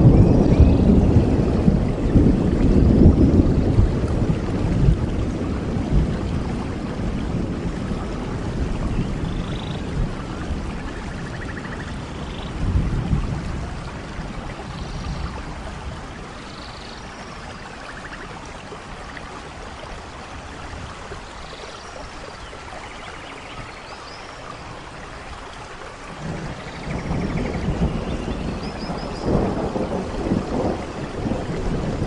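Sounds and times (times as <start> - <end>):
thunder rumbling: 0.0 - 18.1, 26.0 - 32.0
steady rain: 0.0 - 32.0.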